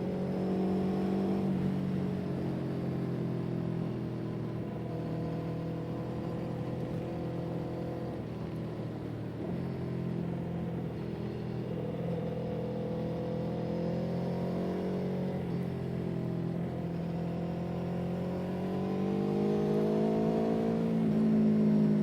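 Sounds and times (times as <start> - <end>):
vehicle engine running: 1.5 - 14.5.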